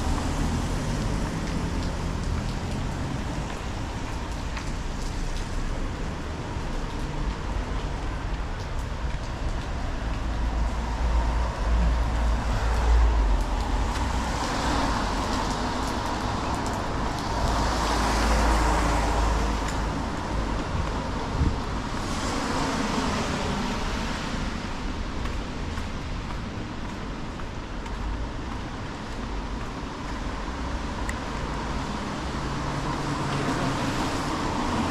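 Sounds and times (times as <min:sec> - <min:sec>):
cars passing with tyre hiss: 0:10.0 - 0:27.3, 0:28.1 - 0:34.9.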